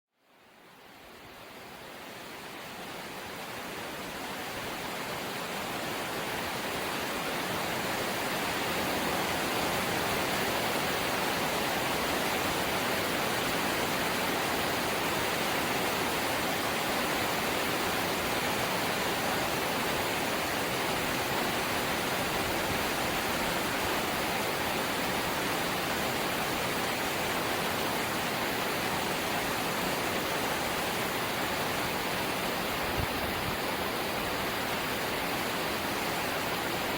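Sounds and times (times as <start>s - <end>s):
rain on a metal roof: 0.2s - 36.9s.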